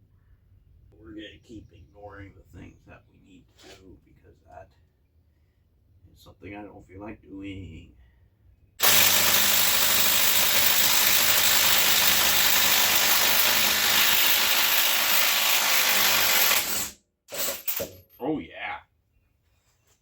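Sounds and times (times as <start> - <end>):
air impact wrench: 8.8 - 17.9.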